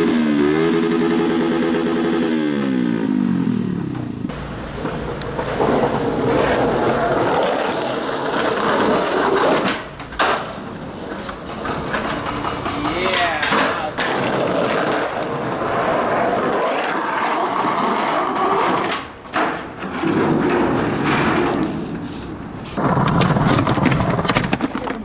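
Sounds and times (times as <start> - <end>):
vehicle engine passing: 0.0 - 10.1
wheels rolling on pavement: 0.0 - 25.0.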